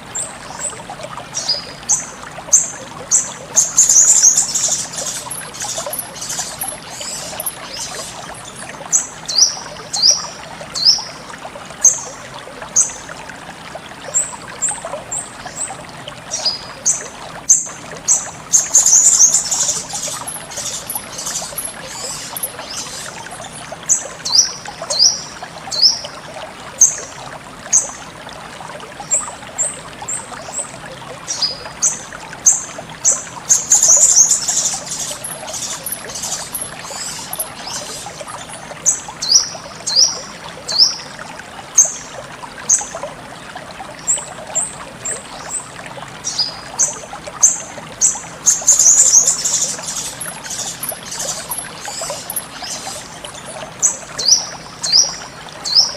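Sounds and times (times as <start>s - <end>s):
trickle of running water: 0.0s - 55.9s
bird giving high chirps: 33.5s - 38.1s.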